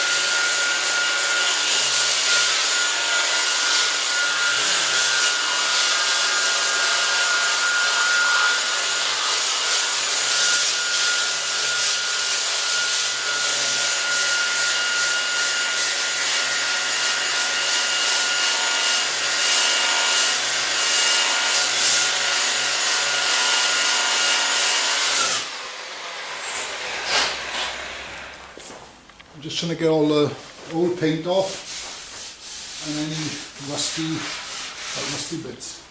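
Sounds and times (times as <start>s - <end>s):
sanding disc scratching metal: 31.0s - 35.7s.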